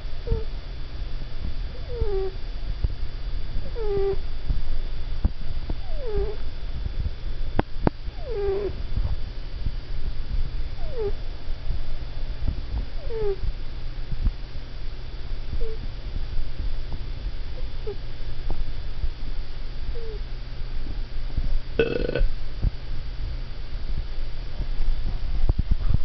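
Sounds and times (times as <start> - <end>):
cat moaning in sleep: 0.3 - 0.5, 1.8 - 2.4, 3.7 - 4.2, 5.8 - 6.4, 8.2 - 8.8, 10.8 - 11.2, 13.0 - 13.4, 15.6 - 15.8, 20.0 - 20.2, 21.8 - 22.2.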